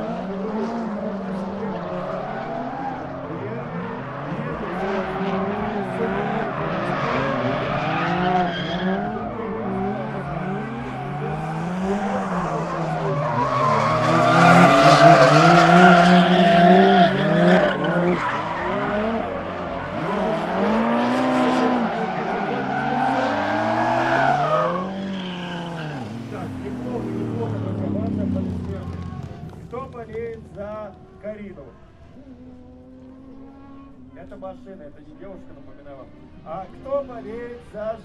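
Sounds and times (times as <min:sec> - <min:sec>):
car engines revving: 0:00.0 - 0:38.0
tyres squealing: 0:02.0 - 0:27.8.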